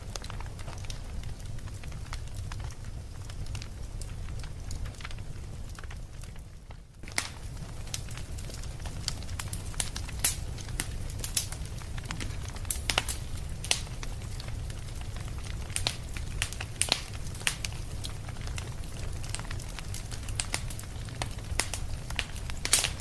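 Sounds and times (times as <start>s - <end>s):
fire pops and snaps: 0.0s - 23.0s
wood fire crackling: 0.0s - 23.0s.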